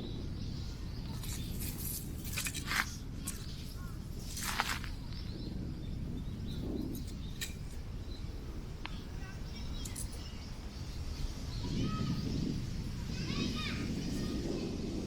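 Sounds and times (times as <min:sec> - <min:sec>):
wind buffeting microphone: 0:00.0 - 0:15.0
short rustle: 0:01.1 - 0:05.0
faint bird chirps: 0:03.2 - 0:15.0.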